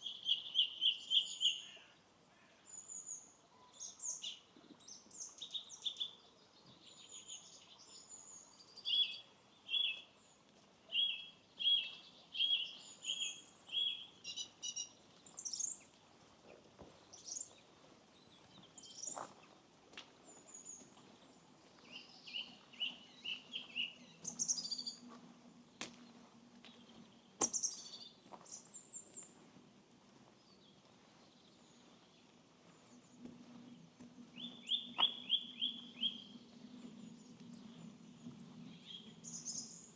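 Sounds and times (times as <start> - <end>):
songbirds singing and calling: 0.0 - 19.6, 20.3 - 39.9.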